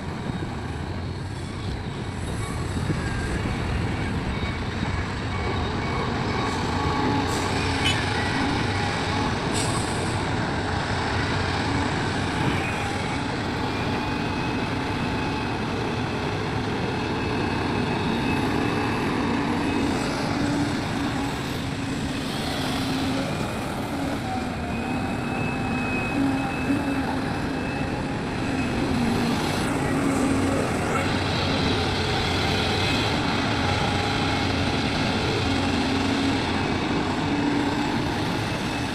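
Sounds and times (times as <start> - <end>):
diesel excavator running: 0.0 - 38.9
hydraulic whine: 11.2 - 38.9.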